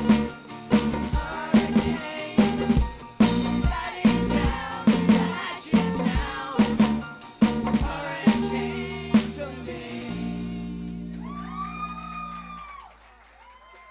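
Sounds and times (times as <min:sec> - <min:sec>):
drums hitting accented beats: 0:00.0 - 0:10.8
live band playing: 0:00.0 - 0:11.2.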